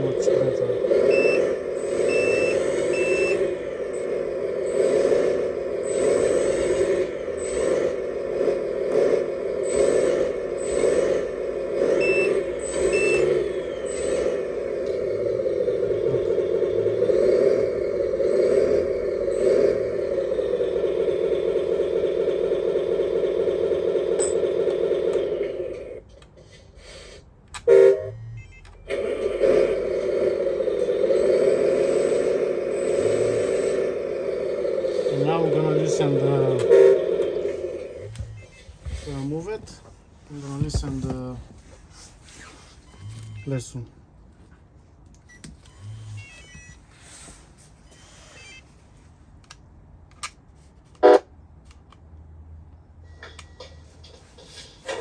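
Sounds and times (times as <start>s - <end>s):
simulated truck engine through speaker: 0.0s - 26.0s, 27.8s - 41.5s, 43.0s - 44.0s
short electronic beeps: 42.8s - 43.8s.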